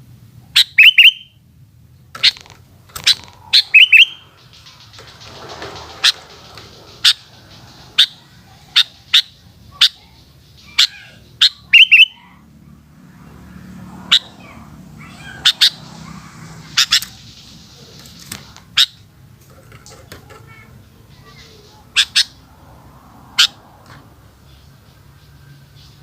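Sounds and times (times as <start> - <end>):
bird chirping: 0.5 - 12.4.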